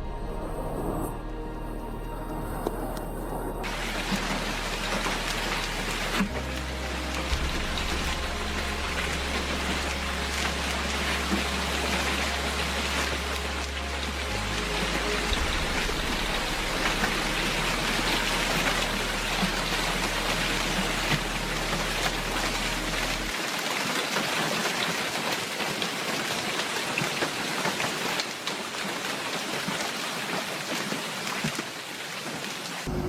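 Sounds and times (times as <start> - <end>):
low steady hum: 0.0 - 23.3
heavy rain pouring: 0.0 - 33.0.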